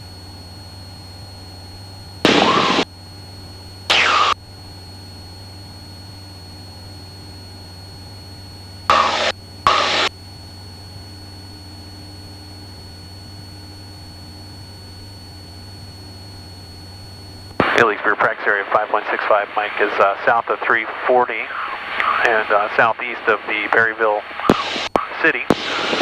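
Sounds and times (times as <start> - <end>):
aircraft engine drone: 0.1 - 26.0
short loud noisy bursts: 2.3 - 2.8, 3.9 - 4.4, 8.9 - 10.1.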